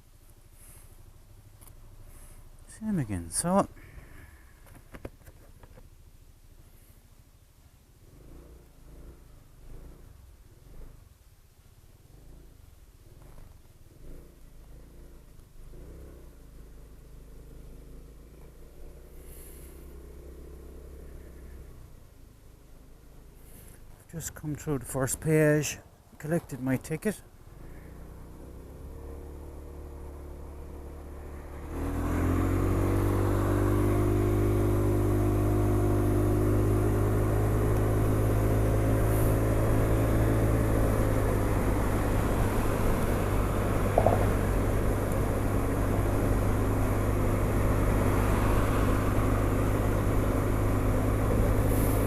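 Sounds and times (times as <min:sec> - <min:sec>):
scooter engine accelerating: 0:08.1 - 0:10.9, 0:12.0 - 0:22.1, 0:27.5 - 0:52.0
wind and road rush: 0:16.9 - 0:52.0.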